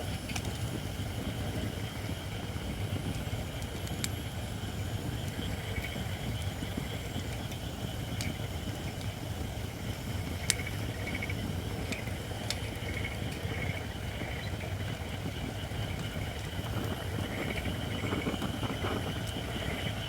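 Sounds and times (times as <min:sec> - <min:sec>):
fire crackles: 0:00.0 - 0:20.0
wood fire burning: 0:00.0 - 0:20.0.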